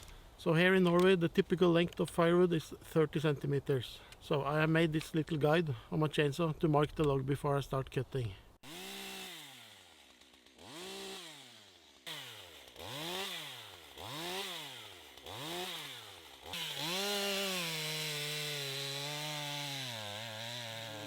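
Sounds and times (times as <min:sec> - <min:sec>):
chainsaw revving: 0:08.6 - 0:21.0.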